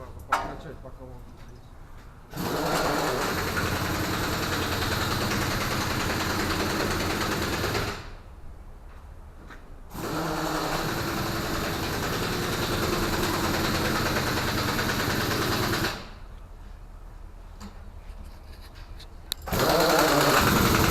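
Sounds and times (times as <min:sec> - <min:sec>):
refrigeration unit running: 0:19.3 - 0:20.9.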